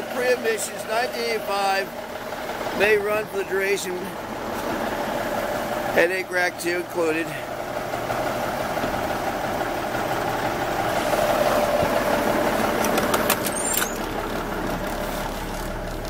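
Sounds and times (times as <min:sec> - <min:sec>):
diesel engine idling: 0:00.0 - 0:16.0
sharp clicks: 0:12.8 - 0:14.1
short squeak: 0:12.8 - 0:14.1.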